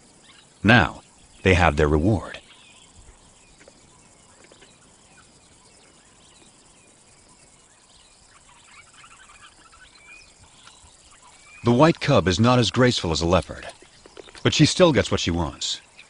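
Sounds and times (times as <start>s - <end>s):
bird chirps and calls: 0.2s - 16.0s.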